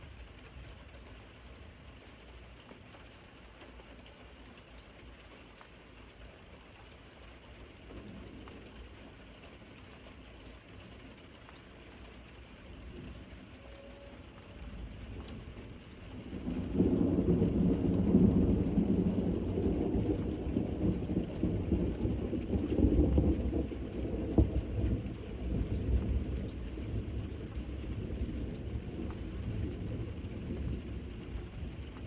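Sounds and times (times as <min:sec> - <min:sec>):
steady rain: 0:00.0 - 0:32.0
rolling thunder: 0:14.2 - 0:32.0.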